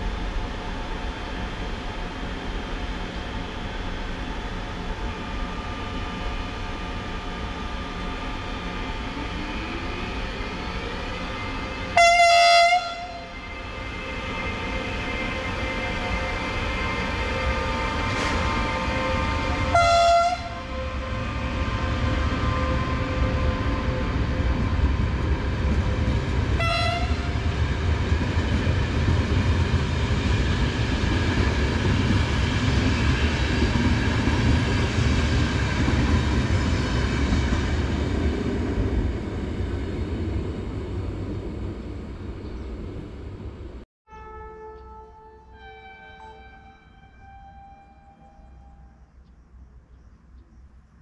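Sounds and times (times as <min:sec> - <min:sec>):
train wheels rumbling on rails: 0:00.0 - 0:43.8
train horn blast: 0:11.6 - 0:21.6, 0:26.6 - 0:27.5, 0:44.1 - 0:49.0.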